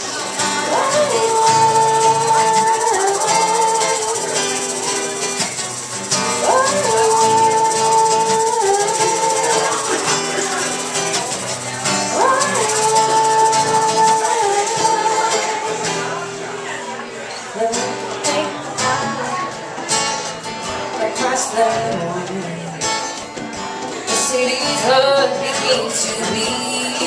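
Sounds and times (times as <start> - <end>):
live band instrumental: 0.0 - 27.0.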